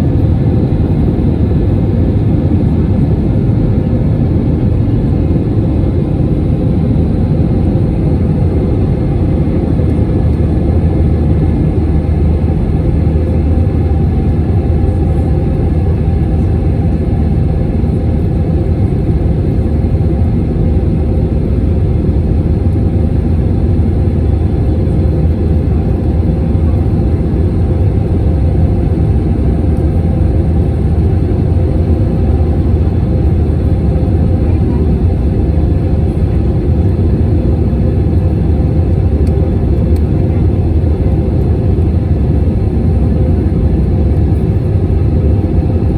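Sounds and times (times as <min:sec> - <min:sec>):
airplane cabin rumble: 0:00.0 - 0:45.9.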